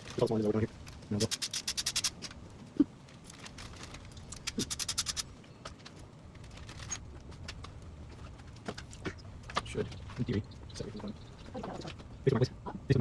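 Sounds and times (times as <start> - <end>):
steady low hum: 0.0 - 13.0
hand ratchet clicking: 1.2 - 2.3, 4.3 - 5.2.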